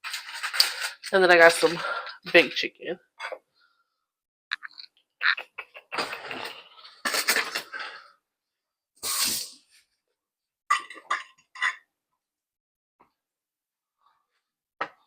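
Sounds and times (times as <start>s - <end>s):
brief hissing burst: 9.0s - 9.6s.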